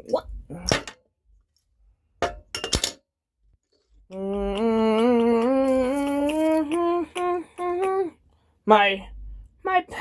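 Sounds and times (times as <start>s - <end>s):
person humming: 4.0s - 8.2s.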